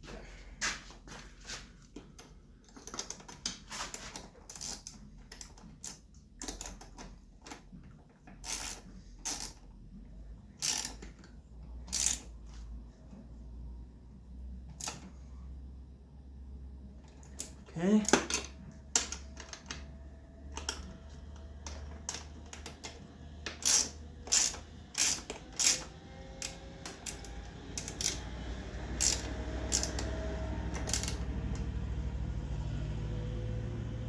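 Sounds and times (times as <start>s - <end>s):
wrench clinking on bolts: 10.6s - 11.1s, 11.8s - 12.3s, 23.6s - 28.3s, 29.0s - 30.1s, 30.7s - 31.2s.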